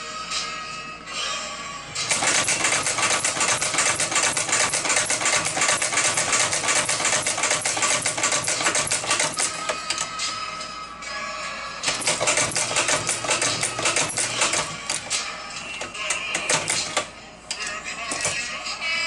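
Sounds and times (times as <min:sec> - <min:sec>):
sewing machine stitching: 0:02.1 - 0:10.0, 0:11.9 - 0:17.1.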